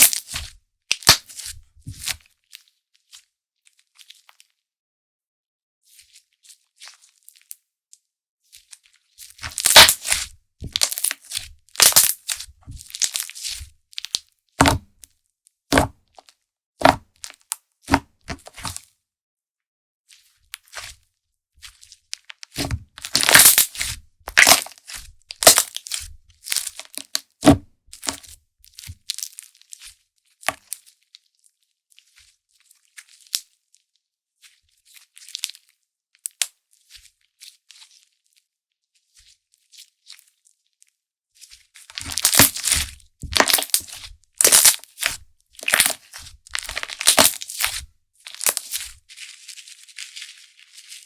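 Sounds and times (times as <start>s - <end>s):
slime crackling when squeezed: 9.4s - 14.2s, 22.6s - 27.2s, 41.9s - 48.9s.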